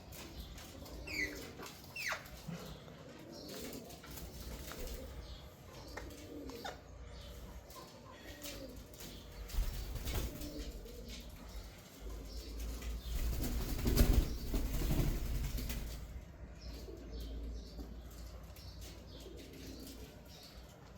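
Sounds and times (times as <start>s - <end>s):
parrot flapping wings: 9.5s - 10.5s, 13.1s - 16.0s.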